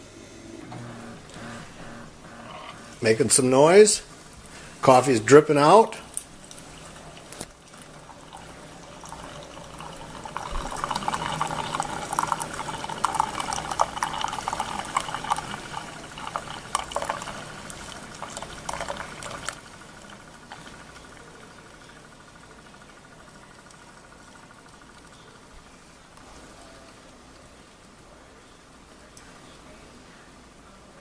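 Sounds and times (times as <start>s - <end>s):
coffee maker hum: 0.0s - 28.4s
coffee streaming into a mug: 6.4s - 26.8s.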